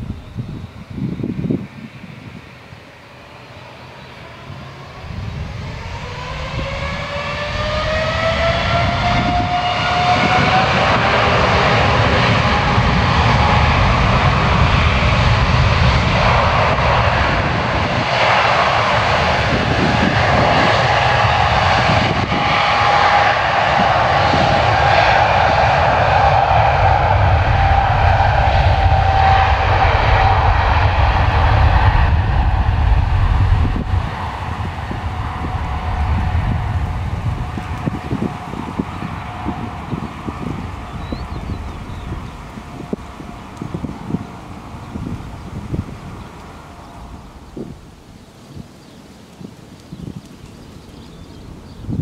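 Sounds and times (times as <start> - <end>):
jet engines spooling up: 0.0 - 48.6.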